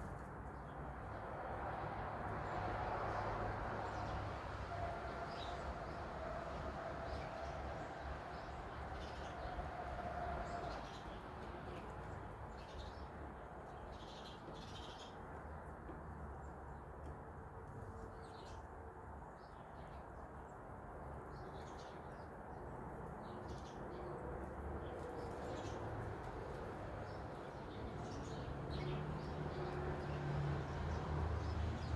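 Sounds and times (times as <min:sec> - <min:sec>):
small birds chirping: 0:10.4 - 0:15.6, 0:24.8 - 0:31.9.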